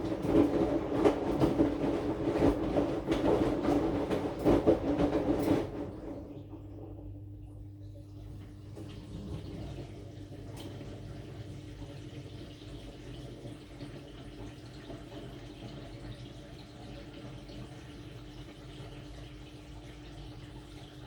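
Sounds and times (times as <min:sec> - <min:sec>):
washing machine hum: 0:00.0 - 0:21.0
water sloshing in washing machine: 0:00.0 - 0:21.0.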